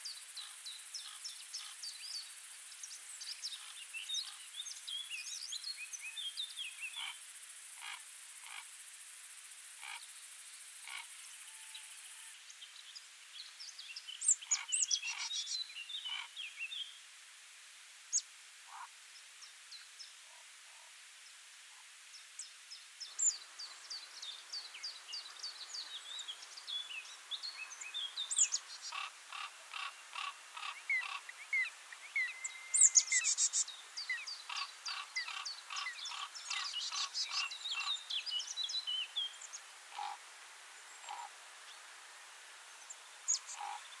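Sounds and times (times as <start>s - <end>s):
small birds chirping and singing: 0.0s - 7.2s, 11.7s - 17.0s, 22.4s - 40.1s, 42.7s - 44.0s.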